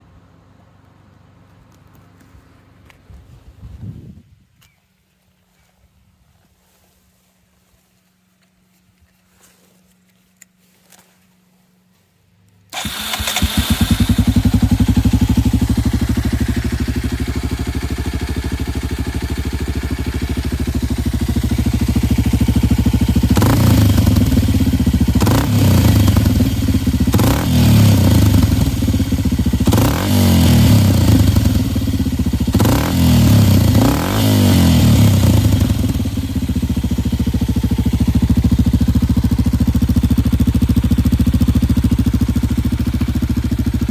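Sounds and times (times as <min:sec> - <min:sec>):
motorcycle engine starting and idling: 0:12.5 - 0:43.9
motorcycle engine revving: 0:12.7 - 0:43.9.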